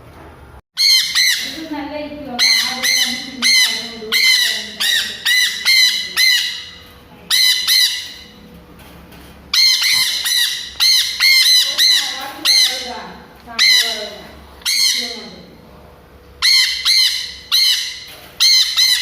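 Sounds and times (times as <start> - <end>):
parrot screeching: 0.8 - 1.7, 2.4 - 8.4, 9.5 - 13.0, 13.6 - 15.3, 16.4 - 19.0.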